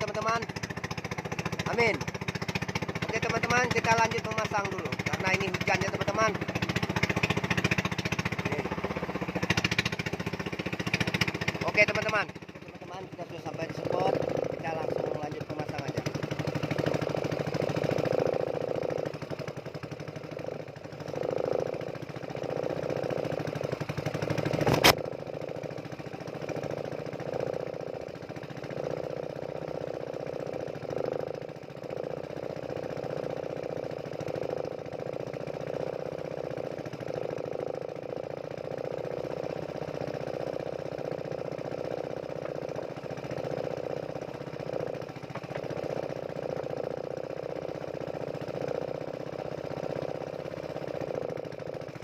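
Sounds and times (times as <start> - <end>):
boat engine knocking: 0.0 - 52.0
sharp click: 24.6 - 25.0.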